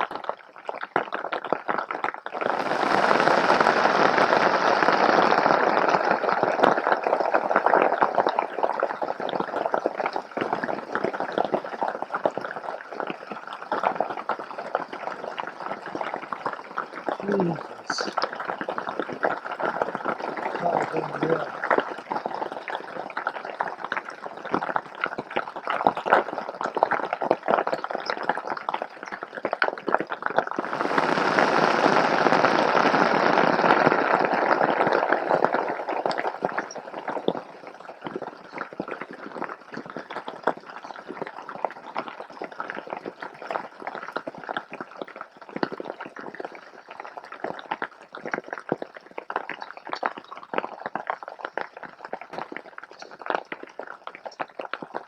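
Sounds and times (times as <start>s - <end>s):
hail and rain pelting down: 2.4s - 7.5s, 17.2s - 18.2s, 19.9s - 21.8s, 30.6s - 38.2s.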